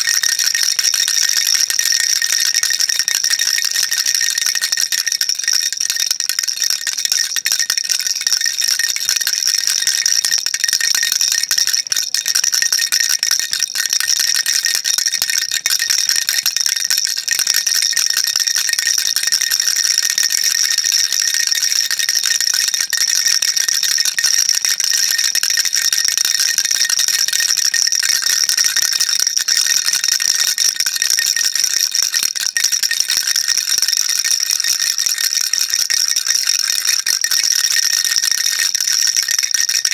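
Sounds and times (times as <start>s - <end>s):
baby rattle shaking: 0.0s - 30.3s.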